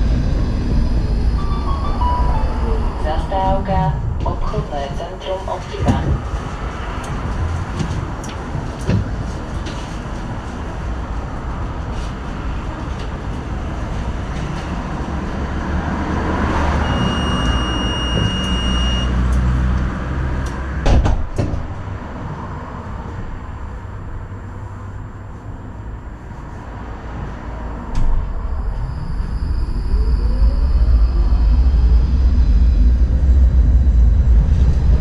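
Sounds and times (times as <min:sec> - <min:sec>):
tram rumbling: 0:00.0 - 0:35.0
high-pitched beep: 0:00.6 - 0:03.7, 0:16.8 - 0:19.2.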